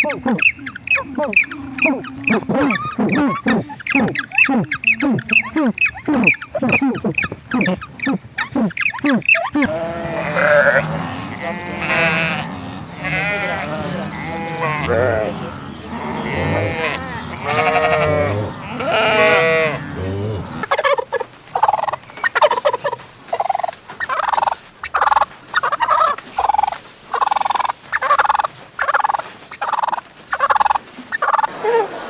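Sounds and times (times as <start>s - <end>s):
short poultry calls: 0.0s - 31.5s
livestock bleating: 9.5s - 20.6s.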